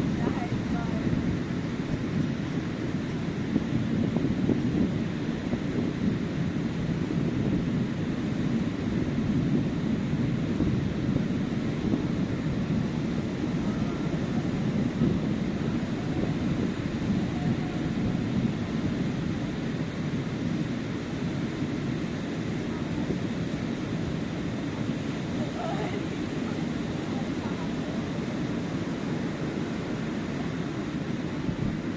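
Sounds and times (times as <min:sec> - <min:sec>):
surf breaking on a beach: 0:00.0 - 0:31.9.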